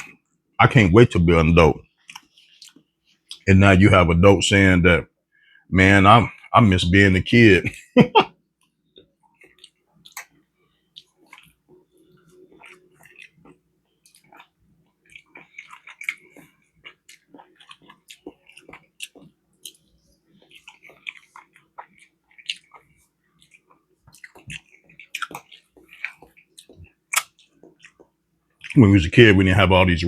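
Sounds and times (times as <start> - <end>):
faint steady hum: 0.0 - 30.0
person chewing food: 1.8 - 3.4, 8.6 - 28.8.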